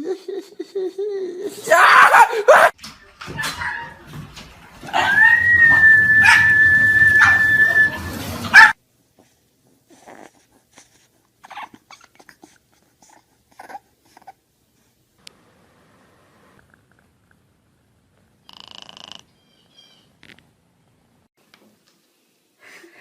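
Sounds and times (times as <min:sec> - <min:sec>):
dog whining: 0:04.9 - 0:08.8, 0:11.4 - 0:14.4.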